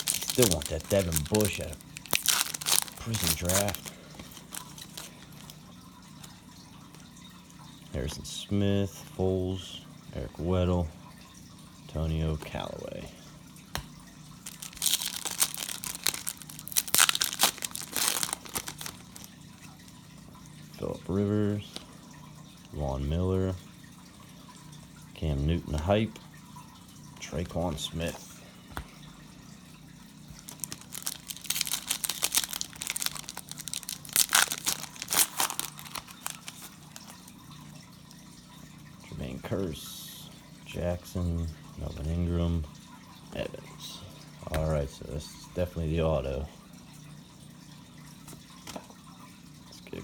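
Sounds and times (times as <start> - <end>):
foil wrapper tearing and crinkling: 0.0 - 5.6, 14.4 - 19.3, 30.4 - 37.2.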